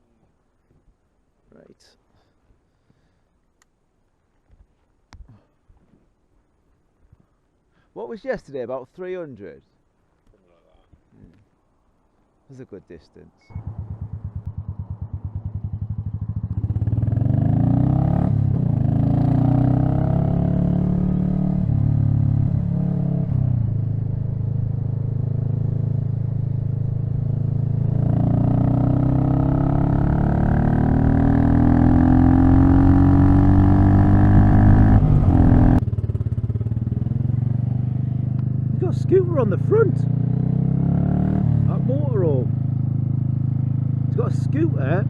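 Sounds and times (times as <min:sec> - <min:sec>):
motorcycle engine accelerating: 0:13.5 - 0:45.0.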